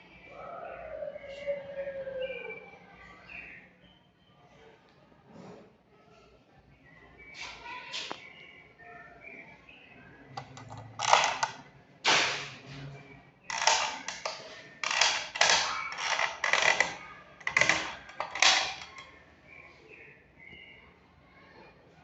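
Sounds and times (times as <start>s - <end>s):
short harsh creaking: 13.5s - 19.0s.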